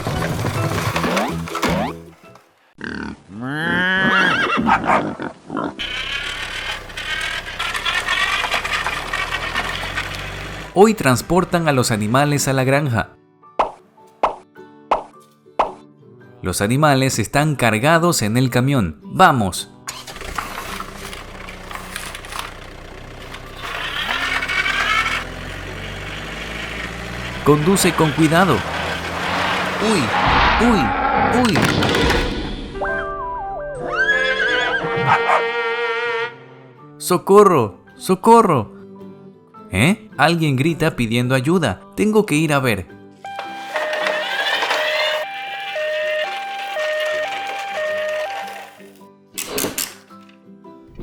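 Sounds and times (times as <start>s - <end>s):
background music: 0.0s - 2.7s, 10.6s - 23.5s, 25.3s - 51.0s
horse whinnying: 2.8s - 6.2s, 33.8s - 36.4s
truck engine pulling away: 5.8s - 12.2s, 19.9s - 34.9s, 43.3s - 49.0s.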